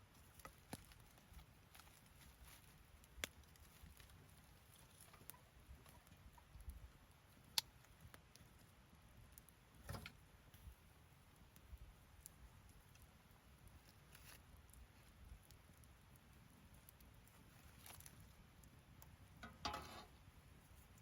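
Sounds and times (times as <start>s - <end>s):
wood fire crackling: 0.0s - 21.0s
sharp pops from fire: 2.7s - 4.2s, 5.2s - 8.7s.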